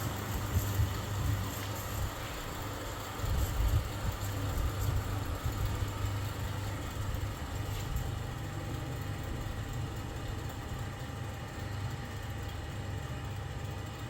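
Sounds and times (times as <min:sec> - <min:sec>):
electric fan running: 0:00.0 - 0:14.0.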